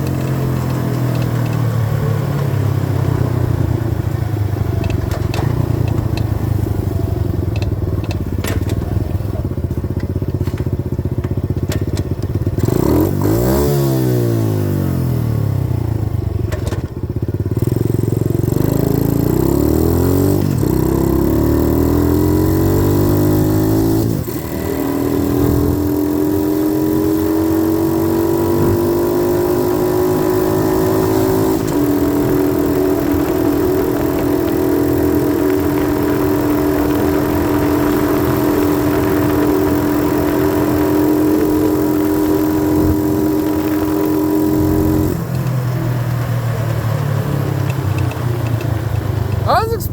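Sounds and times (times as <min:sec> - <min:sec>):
dirt bike engine revving: 0:12.6 - 0:14.9, 0:17.6 - 0:45.2.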